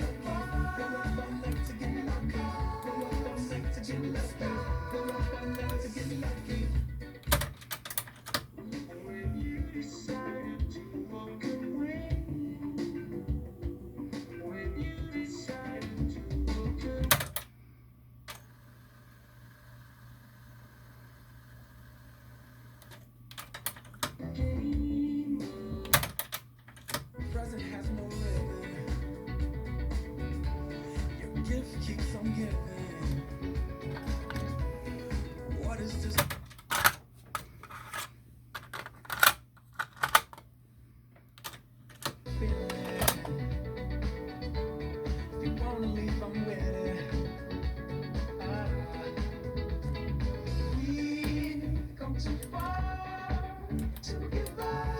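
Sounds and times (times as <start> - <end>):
music playback: 0.0 - 17.5, 23.7 - 37.6, 42.0 - 54.9
faint steady hum: 0.0 - 54.9
cassette deck mechanism clicking: 7.2 - 8.5, 17.0 - 17.5, 22.8 - 24.2, 25.9 - 27.1, 38.6 - 40.5, 41.4 - 43.4
cassette deck clicks: 25.9 - 27.1, 41.4 - 43.4.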